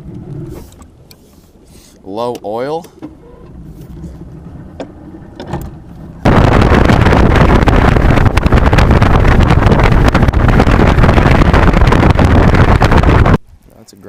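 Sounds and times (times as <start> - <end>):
motorboat running at speed: 0.0 - 13.4
low quiet rumble: 0.0 - 13.7
wind buffeting microphone: 2.7 - 13.5.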